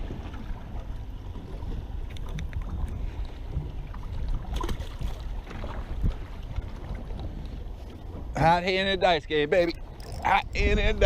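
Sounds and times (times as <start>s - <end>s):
low rumble of wind and water: 0.0s - 11.0s.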